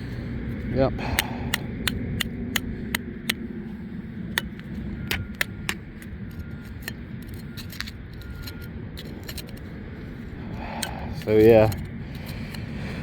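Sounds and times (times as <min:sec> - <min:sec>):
metal knife scraping in soil: 0:06.0 - 0:13.0.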